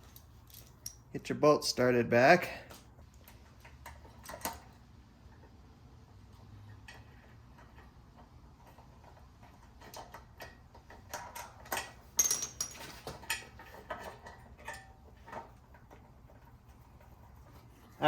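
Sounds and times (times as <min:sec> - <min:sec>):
metallic clicks of bolts and tools: 0:00.0 - 0:01.1, 0:09.0 - 0:16.0.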